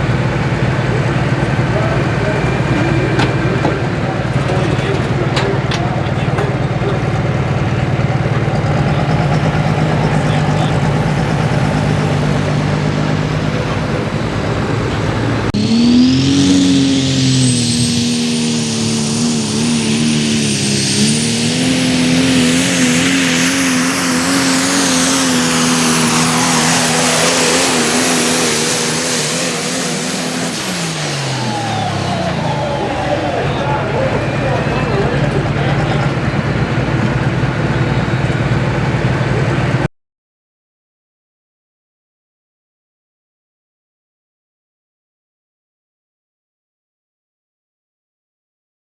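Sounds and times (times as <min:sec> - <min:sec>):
diesel truck engine: 0:00.0 - 0:39.9
turbo whistle: 0:15.6 - 0:35.4.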